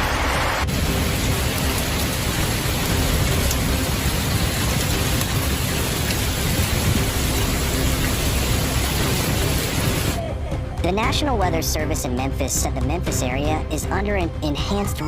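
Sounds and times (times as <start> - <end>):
steady rain falling: 0.0 - 10.3
low rumble: 0.3 - 10.6.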